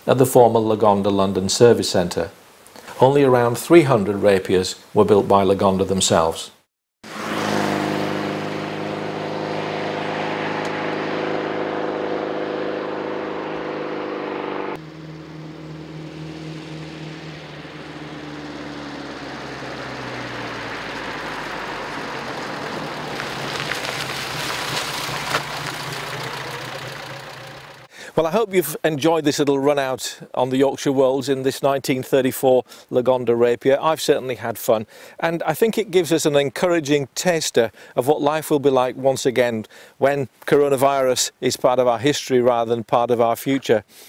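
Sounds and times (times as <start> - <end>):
car engine running: 7.1 - 27.9.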